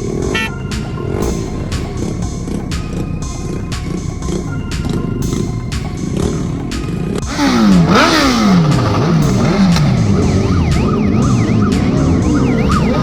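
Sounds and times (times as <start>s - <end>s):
music with a steady beat: 0.0s - 13.0s
electronic siren sweeping: 0.3s - 1.0s, 7.3s - 13.0s.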